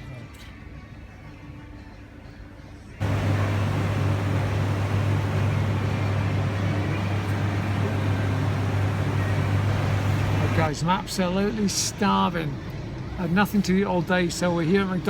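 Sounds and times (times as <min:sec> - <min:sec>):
fan and road noise: 0:02.9 - 0:15.0
car engine hum inside cabin: 0:03.0 - 0:10.7.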